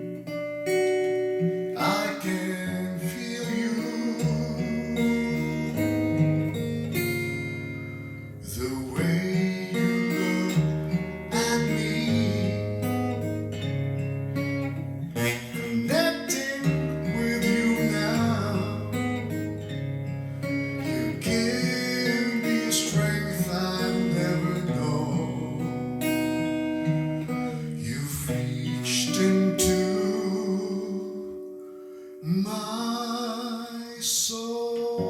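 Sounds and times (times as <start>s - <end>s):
acoustic guitar strumming: 0.0s - 35.0s
person singing: 1.8s - 7.4s, 8.4s - 13.2s, 15.1s - 19.6s, 20.8s - 26.1s, 27.5s - 31.5s.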